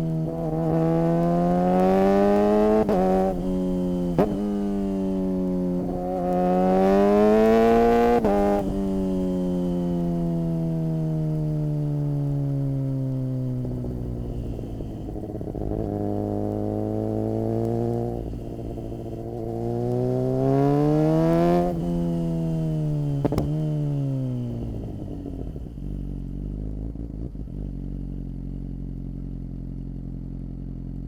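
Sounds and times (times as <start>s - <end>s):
motorcycle engine revving: 0.0s - 29.4s.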